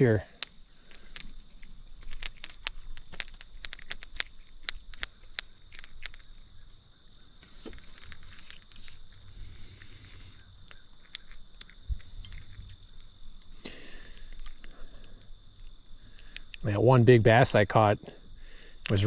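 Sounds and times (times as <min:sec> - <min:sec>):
high-pitched insect chorus: 0:00.0 - 0:19.0
light clicks and rustles: 0:00.3 - 0:06.6, 0:07.4 - 0:16.6.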